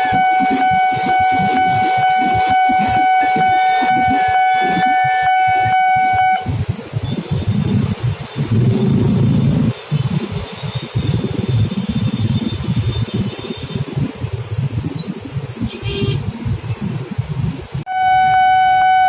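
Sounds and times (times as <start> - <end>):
loud steady horn tone: 0.0 - 10.2, 15.6 - 16.4, 17.9 - 19.0
motor traffic noise: 0.0 - 19.0
rough low rumble: 7.5 - 10.2.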